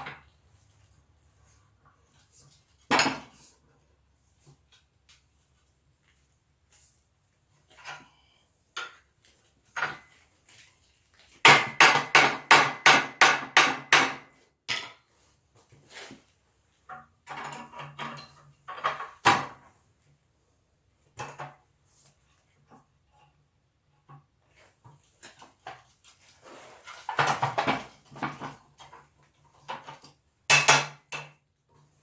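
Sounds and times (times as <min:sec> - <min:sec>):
hammer striking iron on anvil: 0:11.5 - 0:14.2.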